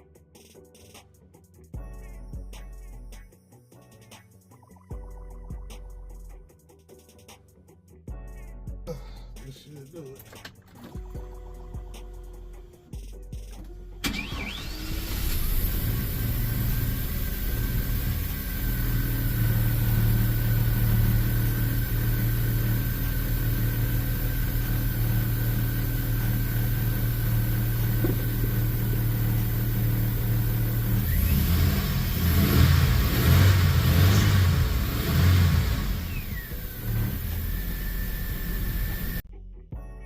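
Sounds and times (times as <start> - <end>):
car engine idling: 13.6 - 39.2
car engine revving: 13.6 - 39.2.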